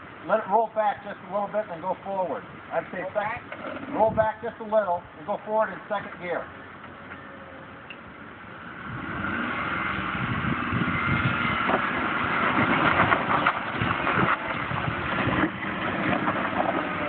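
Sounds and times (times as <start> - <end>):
vehicle engine pulling under load: 6.4 - 17.0.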